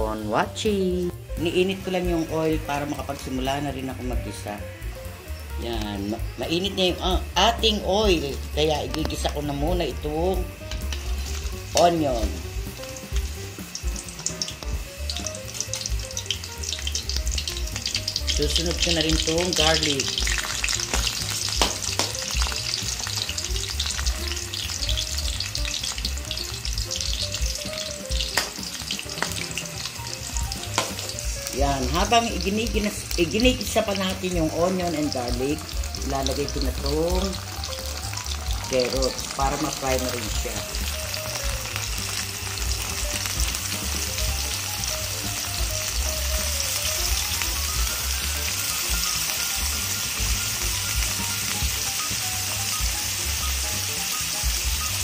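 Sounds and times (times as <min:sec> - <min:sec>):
onion sizzling in hot oil: 0:00.0 - 0:55.0
metal utensil clicking on pan: 0:19.0 - 0:23.3, 0:28.3 - 0:29.4, 0:30.7 - 0:31.1.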